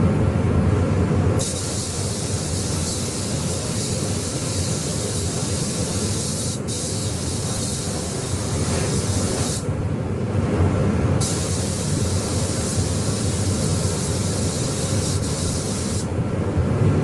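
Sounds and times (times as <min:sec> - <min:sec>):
steady low rumble: 0:00.0 - 0:17.0
air spray gun hissing: 0:01.4 - 0:09.7, 0:11.2 - 0:16.1.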